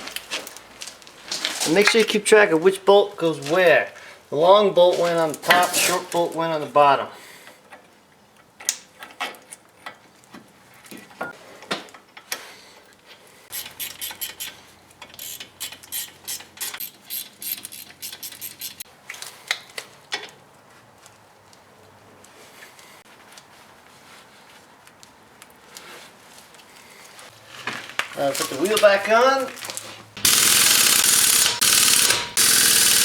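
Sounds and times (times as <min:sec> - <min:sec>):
metal clinks of tools: 0:13.5 - 0:18.8
ratchet wrench clicking: 0:13.5 - 0:18.8, 0:30.2 - 0:33.0.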